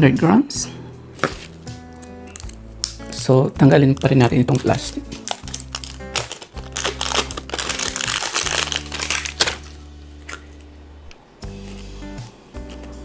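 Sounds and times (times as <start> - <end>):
background music: 0.0 - 13.0
plastic wrapping crinkling: 1.2 - 10.7.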